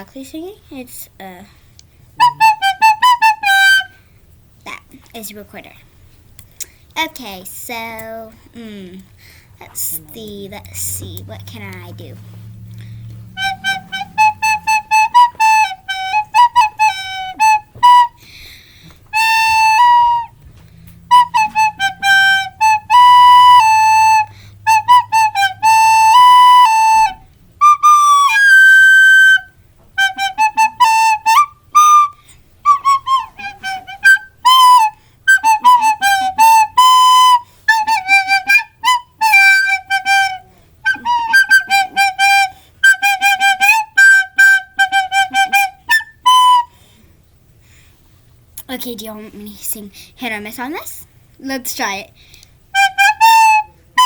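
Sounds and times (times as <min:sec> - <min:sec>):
recorder playing a tune: 0:02.2 - 0:04.0, 0:10.7 - 0:46.8, 0:52.7 - 0:54.0.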